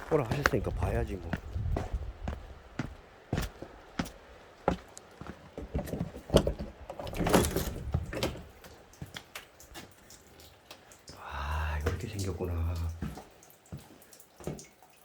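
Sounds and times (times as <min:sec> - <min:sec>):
knocks and clunks of wooden door: 0:05.7 - 0:08.5.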